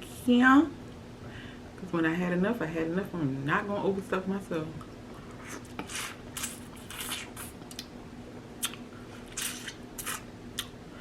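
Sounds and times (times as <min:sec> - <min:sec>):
faint steady hum: 0:00.0 - 0:11.0
wet chewing sounds: 0:05.3 - 0:07.9, 0:08.6 - 0:10.8.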